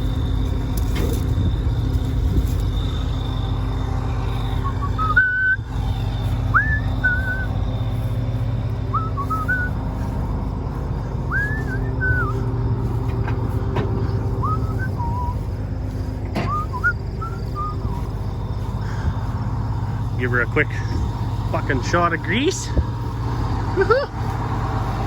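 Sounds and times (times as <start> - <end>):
heavy machine engine running: 0.0 - 25.0
person whistling: 4.6 - 5.7, 6.5 - 7.5, 8.9 - 9.8, 11.2 - 12.6, 14.3 - 15.6, 16.4 - 18.1.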